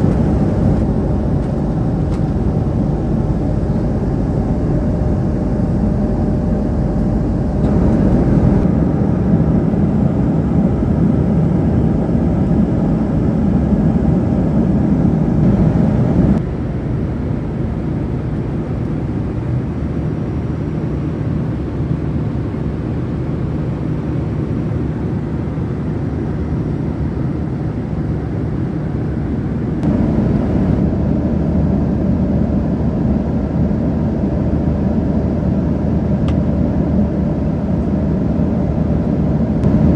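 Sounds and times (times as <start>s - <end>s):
vehicle cabin drone: 0.0s - 20.1s, 28.2s - 39.9s.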